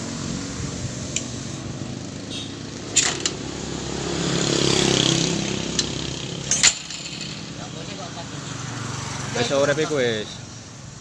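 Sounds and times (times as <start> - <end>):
vehicle engine running: 0.0 - 9.0.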